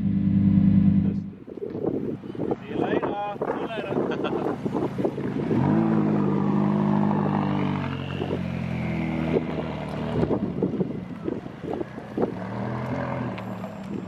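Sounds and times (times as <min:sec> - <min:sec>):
sports car engine pulling away: 0:00.0 - 0:01.3, 0:05.2 - 0:14.0.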